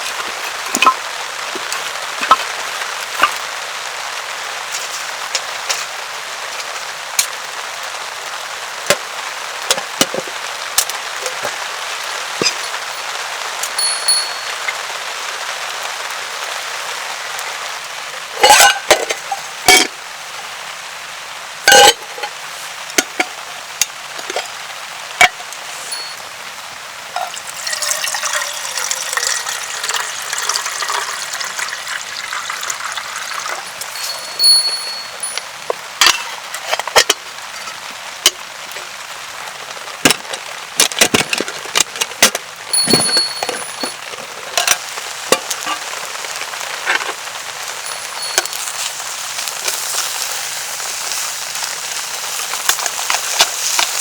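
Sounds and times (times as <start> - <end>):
water pouring: 0.0 - 3.7, 11.1 - 15.1, 25.6 - 26.3, 27.1 - 36.4, 42.7 - 54.0
heavy rain hissing: 0.0 - 27.8, 28.6 - 40.8, 42.4 - 54.0
raindrop ticks: 27.2 - 34.3, 44.0 - 54.0.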